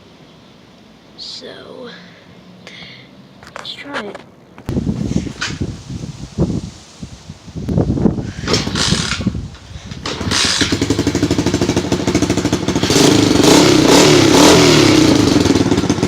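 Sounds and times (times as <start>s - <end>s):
dirt bike engine starting and revving: 8.2s - 16.0s.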